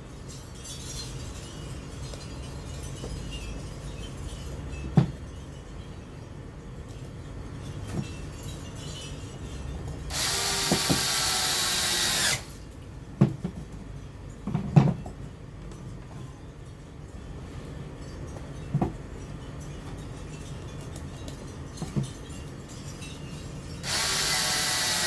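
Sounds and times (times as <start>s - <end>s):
power screwdriver running: 10.1s - 12.5s, 23.8s - 25.0s
knocks of parts and tools: 13.2s - 15.2s.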